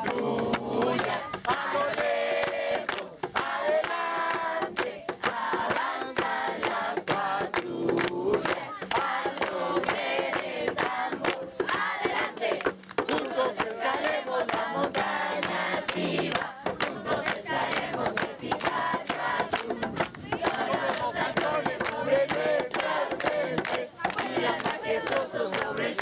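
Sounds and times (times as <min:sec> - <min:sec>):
people clapping: 0:00.0 - 0:26.0
crowd shouting and cheering: 0:08.6 - 0:09.3.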